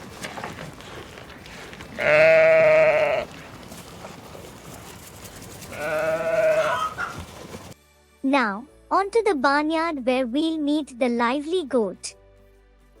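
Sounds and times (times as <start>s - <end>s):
sheep bleating: 1.9s - 3.5s, 5.7s - 7.2s.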